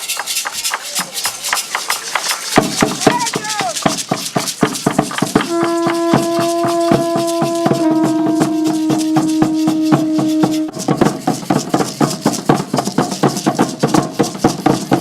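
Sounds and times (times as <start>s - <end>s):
drum strikes: 0.4s - 15.0s
conch shell blasts: 5.2s - 11.6s.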